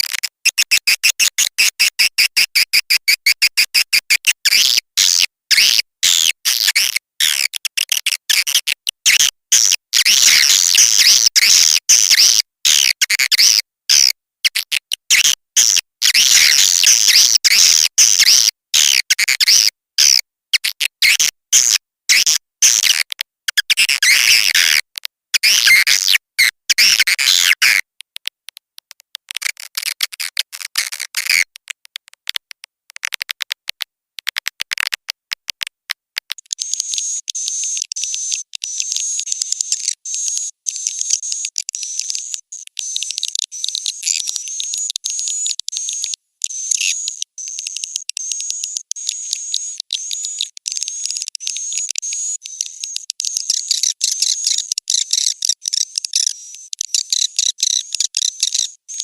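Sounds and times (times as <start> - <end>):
fast clicks: 27.7 - 58.7
high twittering bird chirps: 36.5 - 59.0.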